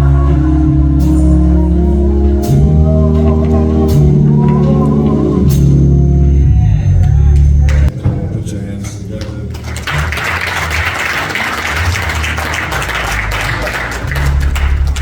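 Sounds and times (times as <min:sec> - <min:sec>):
church organ chords: 0:00.0 - 0:08.1.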